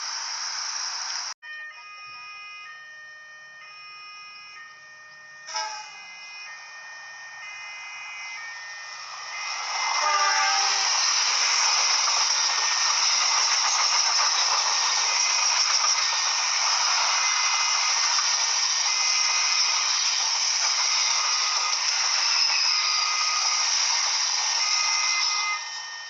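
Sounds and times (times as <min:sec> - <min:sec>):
train passing at speed: 0:00.0 - 0:01.3, 0:07.7 - 0:26.0
train horn: 0:05.4 - 0:06.6, 0:09.3 - 0:11.3.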